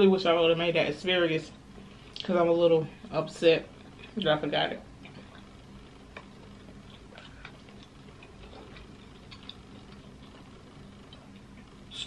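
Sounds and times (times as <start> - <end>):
low steady hum: 0.0 - 12.0
quiet chewing: 5.0 - 12.0.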